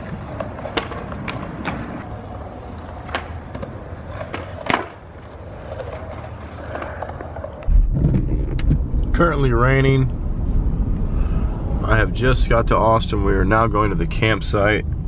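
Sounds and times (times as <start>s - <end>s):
skateboard clacking: 0.0s - 8.6s
skateboard wheels rolling on concrete: 0.0s - 15.0s.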